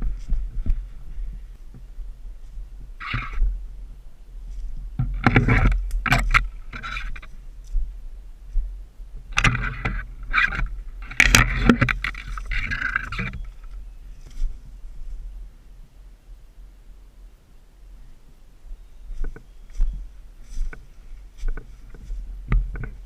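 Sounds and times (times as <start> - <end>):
low wind rumble: 0.0 - 23.0
scraping and rustling of gear: 9.4 - 14.6.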